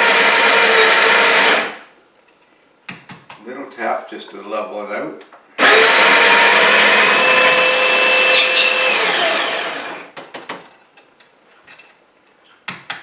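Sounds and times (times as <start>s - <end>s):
coffee grinder motor whining: 5.6s - 10.1s.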